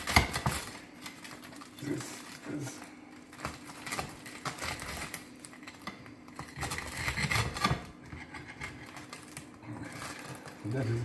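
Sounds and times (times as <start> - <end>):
knife cutting crisp crust: 6.4 - 11.0.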